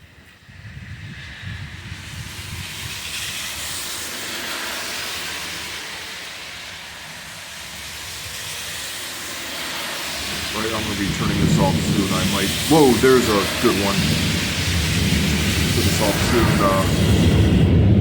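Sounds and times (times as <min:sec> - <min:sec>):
heavy rain and wind: 0:00.0 - 0:18.0
low rumble: 0:10.1 - 0:18.0.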